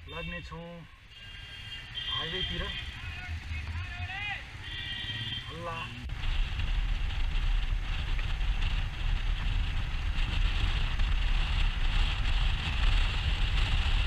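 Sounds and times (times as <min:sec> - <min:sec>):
road noise: 0:00.0 - 0:14.0
motorcycle engine: 0:01.0 - 0:14.0
wind buffeting microphone: 0:06.0 - 0:14.0.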